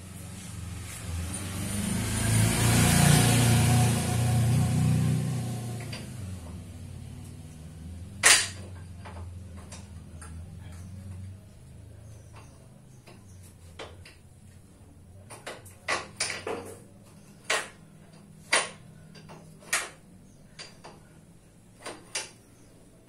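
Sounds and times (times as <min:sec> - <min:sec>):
sharp knocks and clicks: 0:08.2 - 0:11.4, 0:12.1 - 0:14.3, 0:15.2 - 0:21.1, 0:21.8 - 0:22.7.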